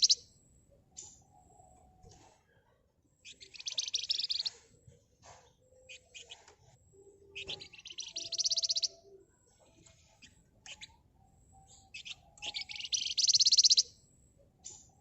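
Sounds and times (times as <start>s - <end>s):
songbird buzzing trills: 0.0s - 0.2s, 7.0s - 9.2s, 10.2s - 14.0s
bird chirps: 0.0s - 15.0s.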